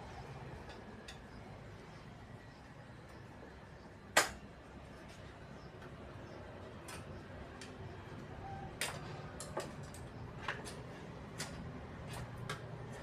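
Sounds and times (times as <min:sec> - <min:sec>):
tools clicking and knocking: 0:06.8 - 0:07.9, 0:08.8 - 0:13.0.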